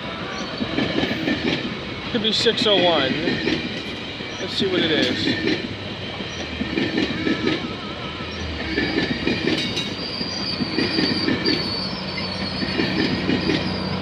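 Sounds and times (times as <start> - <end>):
high wheel squeal: 0.0 - 14.0
train rumble: 0.0 - 14.0
train wheels knocking over rail joints: 0.0 - 14.0.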